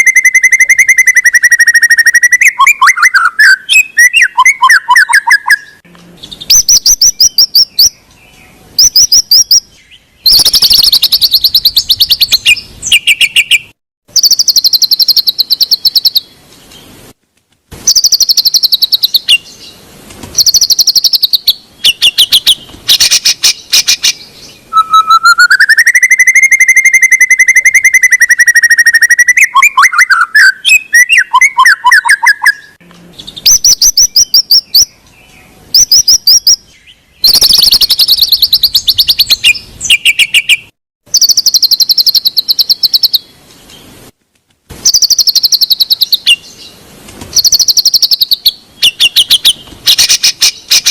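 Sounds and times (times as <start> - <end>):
bird trilling song: 0.0 - 16.9, 17.8 - 19.8, 20.4 - 43.9, 44.8 - 50.9
bird long whistled note: 24.7 - 32.8.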